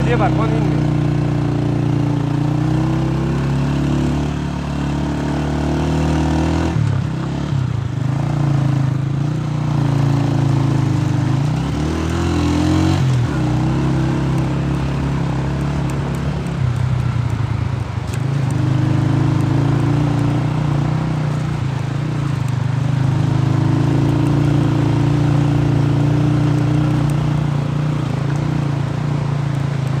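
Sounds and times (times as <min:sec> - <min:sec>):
vehicle engine running: 0:00.0 - 0:02.7.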